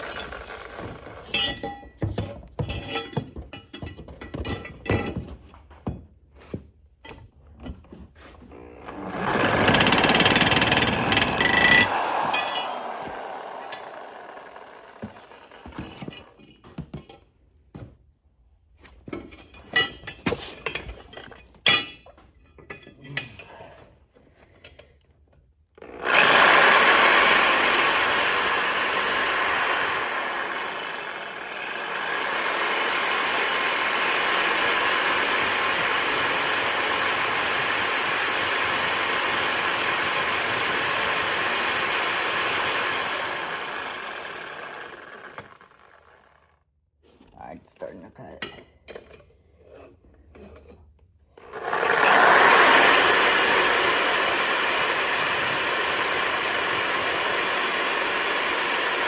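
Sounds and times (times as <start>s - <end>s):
jigsaw cutting metal pipe: 0.0s - 2.2s, 8.3s - 16.4s, 25.8s - 46.6s, 51.3s - 59.0s.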